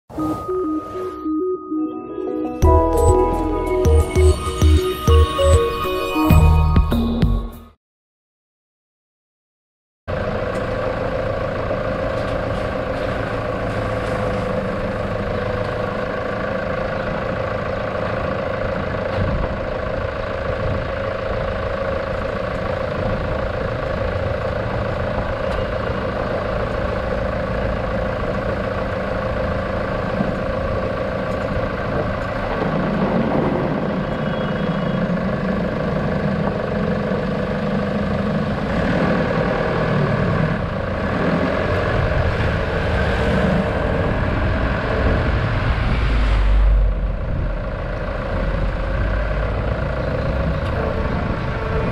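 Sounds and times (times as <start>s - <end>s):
deep rumble: 40.2s - 51.6s.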